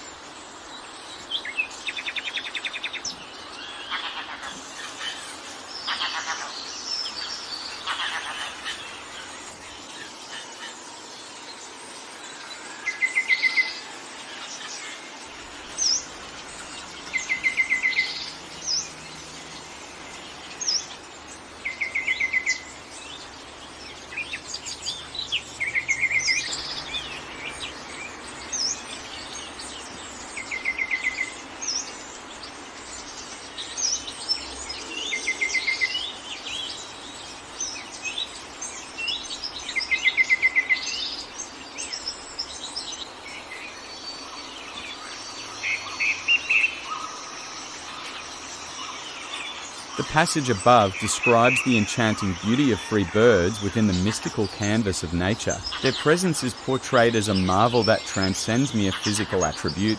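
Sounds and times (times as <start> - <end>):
bird song of quick notes: 0.0 - 59.9
forest background hiss: 0.0 - 59.9.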